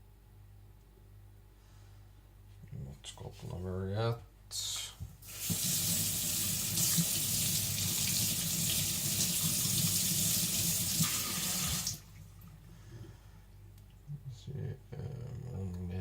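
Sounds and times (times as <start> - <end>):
tap water running into sink: 5.2 - 12.2.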